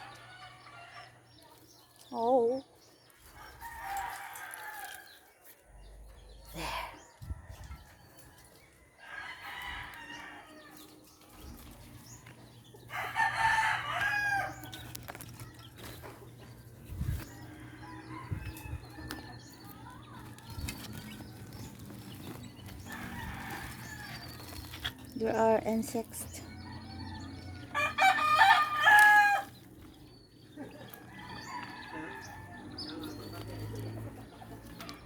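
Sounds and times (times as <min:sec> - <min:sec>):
rooster crowing: 0:12.9 - 0:14.8, 0:26.5 - 0:29.6, 0:30.7 - 0:33.1.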